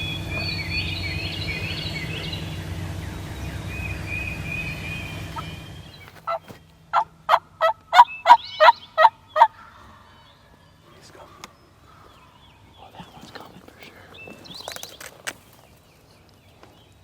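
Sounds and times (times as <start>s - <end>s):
low steady hum: 0.0s - 17.0s
songbirds singing: 0.0s - 17.0s
turkey yelps: 4.4s - 10.2s.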